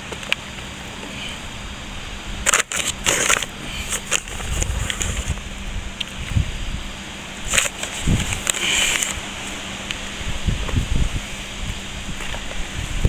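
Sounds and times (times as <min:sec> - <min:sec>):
wet sand scraping in a bucket: 0:02.4 - 0:05.6, 0:07.4 - 0:13.0.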